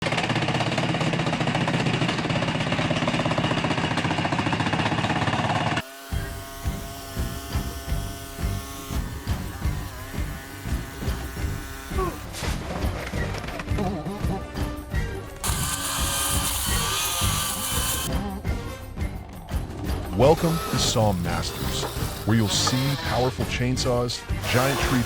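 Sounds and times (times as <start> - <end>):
chainsaw buzzing: 0.0 - 12.4, 15.4 - 18.1, 20.2 - 23.3, 24.4 - 25.0.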